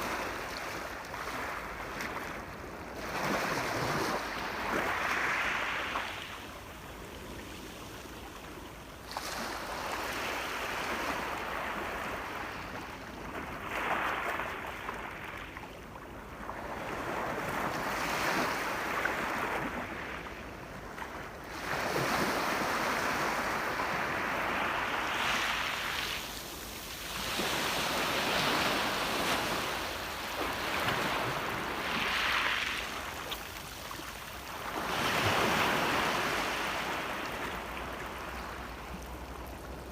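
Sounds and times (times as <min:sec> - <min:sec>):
ocean waves breaking: 0:21.6 - 0:39.9.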